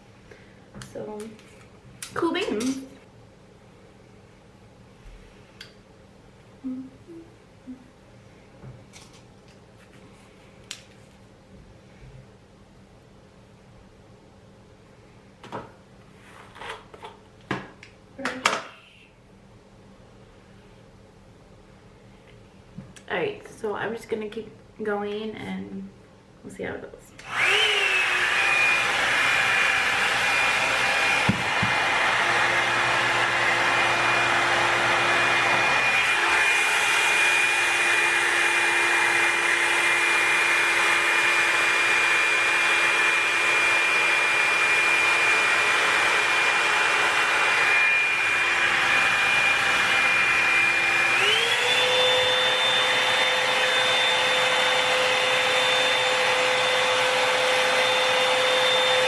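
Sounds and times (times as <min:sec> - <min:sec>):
hair dryer air rush and whine: 0:27.2 - 0:59.0.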